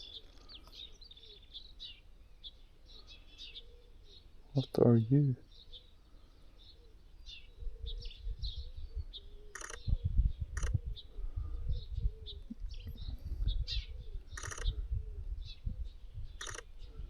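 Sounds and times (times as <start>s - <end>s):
small birds chirping: 0.0s - 17.0s
camera shutter clicks: 9.5s - 9.8s, 14.4s - 14.7s, 16.4s - 16.7s.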